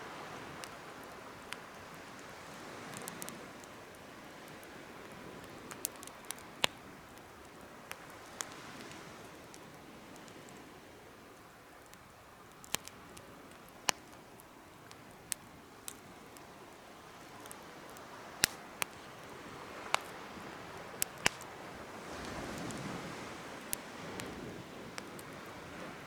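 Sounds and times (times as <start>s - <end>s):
fire hissing: 0.1s - 26.0s
wood fire popping: 0.1s - 26.0s.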